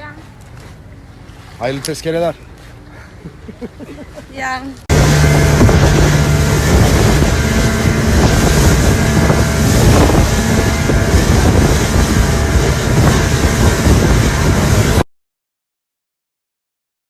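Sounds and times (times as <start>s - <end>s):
motor running: 4.9s - 15.0s
wind buffeting microphone: 4.9s - 15.0s.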